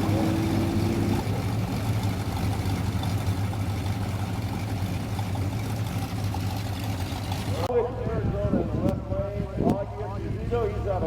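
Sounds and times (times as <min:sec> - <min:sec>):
car engine idling: 0:00.0 - 0:08.0
higher engine tone: 0:00.0 - 0:11.0.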